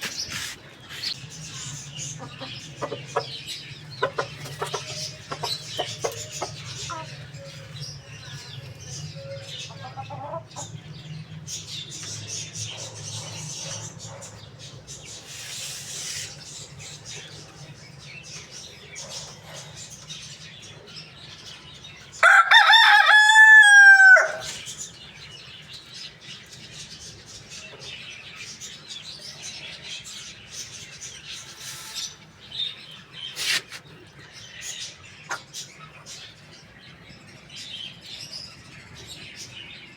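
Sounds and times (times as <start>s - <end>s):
chickens clucking and chirping: 0.0s - 39.9s
rooster crowing: 22.2s - 24.6s.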